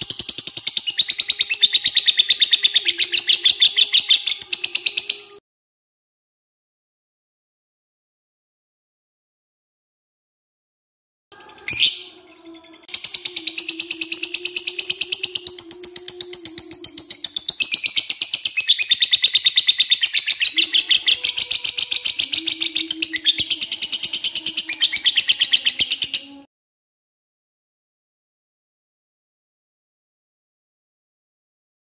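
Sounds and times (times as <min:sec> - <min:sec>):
lovebird chattering trill: 0:11.4 - 0:26.4.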